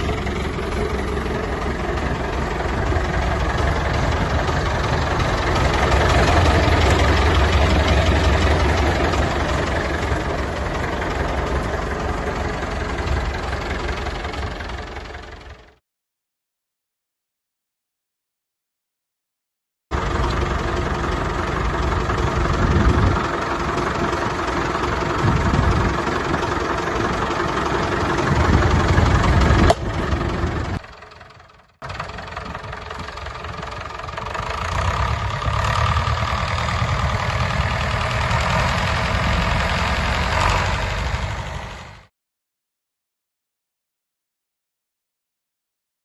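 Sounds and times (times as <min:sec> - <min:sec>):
tractor diesel engine running: 0:00.0 - 0:15.8, 0:19.9 - 0:42.1.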